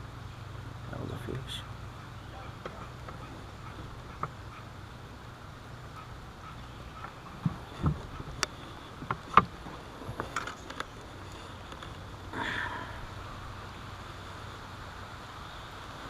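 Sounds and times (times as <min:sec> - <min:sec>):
gear knocking in a boat: 0:06.0 - 0:11.0.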